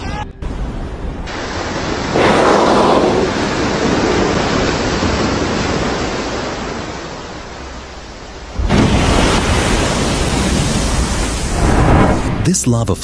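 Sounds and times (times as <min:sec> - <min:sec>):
loud rushing roar: 0:02.1 - 0:04.5.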